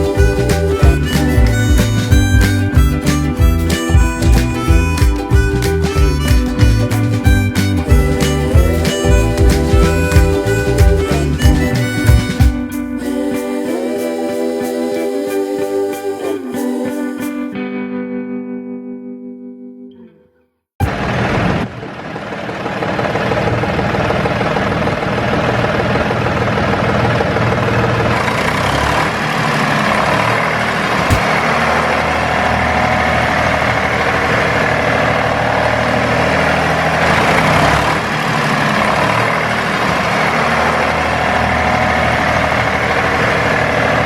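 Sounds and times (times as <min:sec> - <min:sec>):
heavy engine idling: 0:00.0 - 0:12.8, 0:20.8 - 0:44.0
sharp click: 0:31.1 - 0:31.4.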